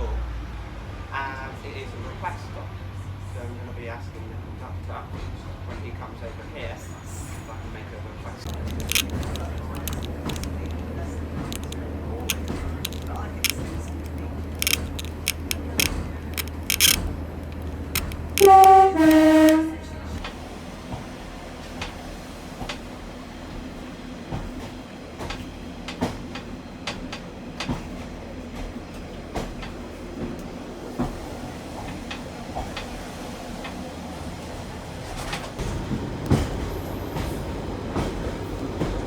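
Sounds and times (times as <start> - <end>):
train rattling and clicking: 0.8 - 39.0
train horn two notes: 18.4 - 20.2.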